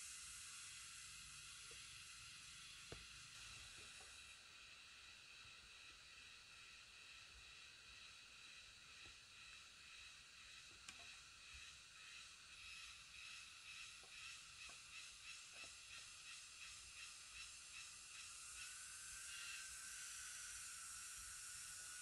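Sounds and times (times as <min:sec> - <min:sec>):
forest insects chorus: 0:00.0 - 0:22.0
high pulsing insect buzz: 0:00.0 - 0:22.0.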